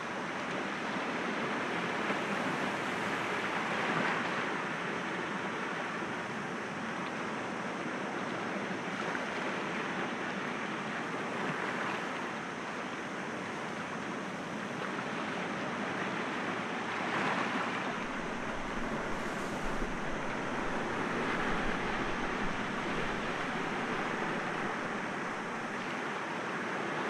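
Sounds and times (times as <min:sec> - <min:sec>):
sea waves breaking against rocks: 0:17.1 - 0:26.2.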